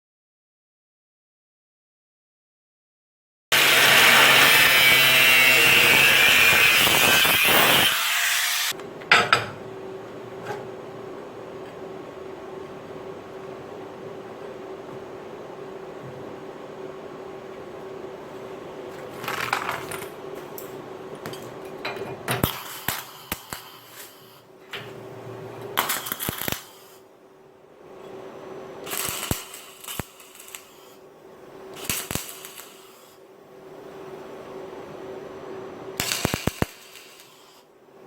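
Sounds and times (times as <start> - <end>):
faint steady hum: 8.8 - 38.0.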